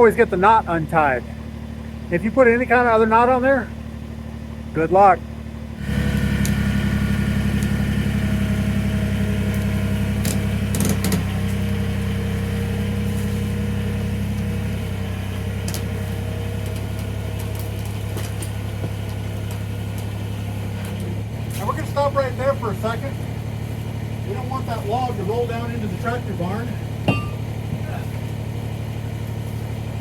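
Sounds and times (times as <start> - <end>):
tractor diesel engine running: 0.0 - 30.0
knocks: 27.1 - 27.8.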